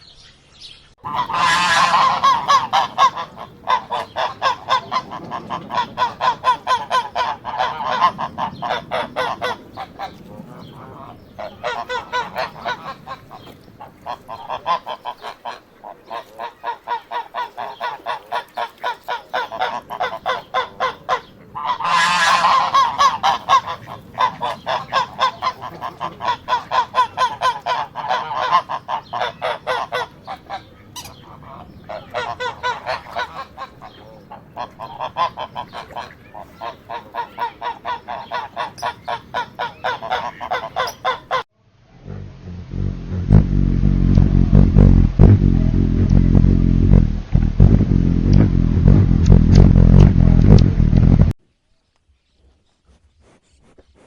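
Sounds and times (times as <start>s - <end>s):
fowl calling: 1.0s - 41.4s
low rumbling noise: 41.3s - 51.4s.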